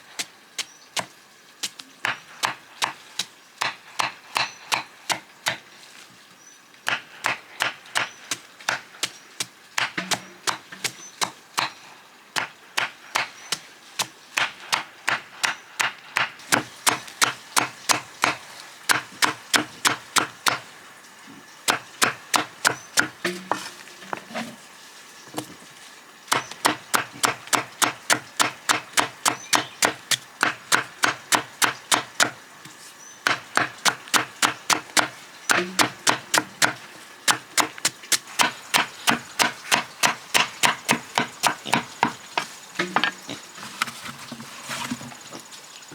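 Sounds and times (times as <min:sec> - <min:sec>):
knife chopping on wooden board: 0:06.9 - 0:11.8, 0:12.4 - 0:20.6, 0:21.7 - 0:24.5, 0:26.3 - 0:43.4.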